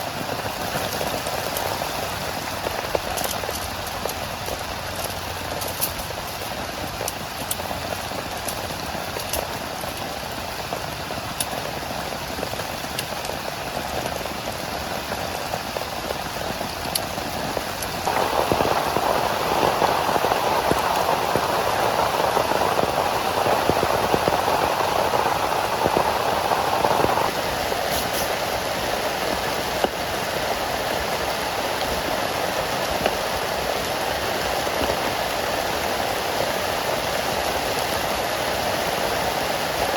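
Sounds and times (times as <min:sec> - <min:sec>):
heavy rain falling: 0:00.0 - 0:39.9
sharp raindrop ticks: 0:00.1 - 0:28.4.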